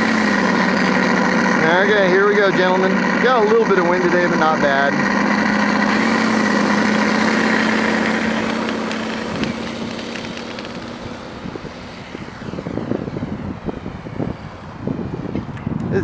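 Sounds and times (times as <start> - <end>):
model plane motor drone: 0.0 - 16.0
wind buffeting microphone: 5.3 - 16.0.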